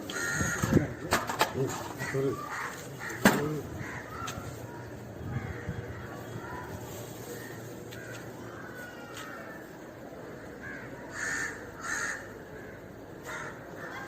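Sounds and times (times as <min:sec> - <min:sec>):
crow cawing: 0:00.0 - 0:01.1, 0:01.7 - 0:04.7, 0:05.3 - 0:06.4, 0:07.3 - 0:09.7, 0:10.3 - 0:14.0.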